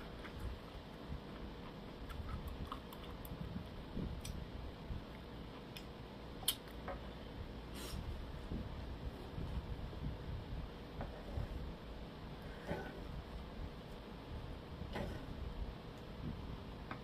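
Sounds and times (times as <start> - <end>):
person chewing food: 0.2 - 3.4.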